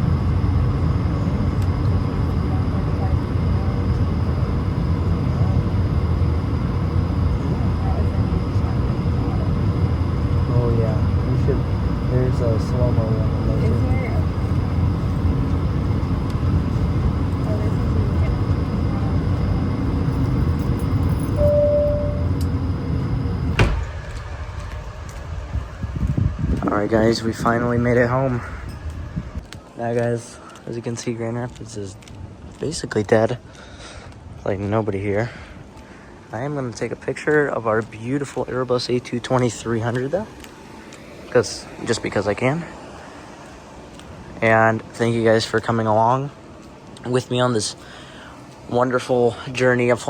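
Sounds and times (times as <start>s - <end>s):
jet engine cabin rumble: 0.0s - 29.4s, 38.3s - 46.4s
brief single tone: 21.3s - 23.6s.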